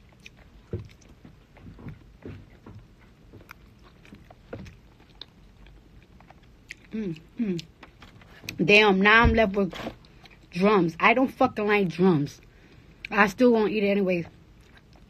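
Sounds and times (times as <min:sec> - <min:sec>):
person chewing: 0:00.0 - 0:08.6, 0:14.5 - 0:15.0.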